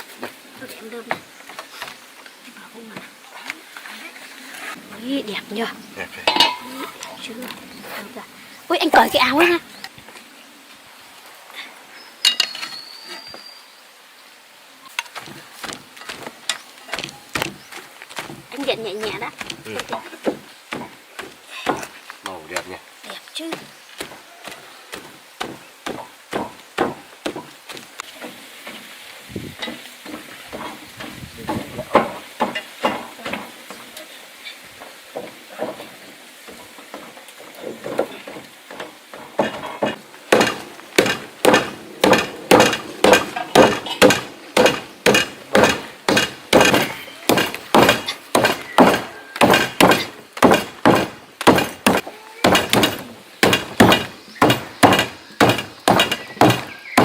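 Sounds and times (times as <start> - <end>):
wooden thuds of rice pounding: 37.7 - 56.8.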